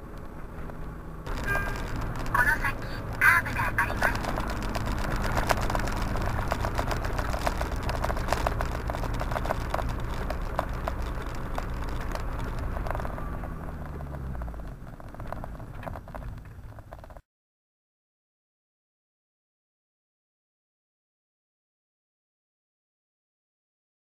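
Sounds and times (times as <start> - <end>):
car engine and road noise: 0.0 - 17.2
sharp clicks and crackles: 0.0 - 17.2.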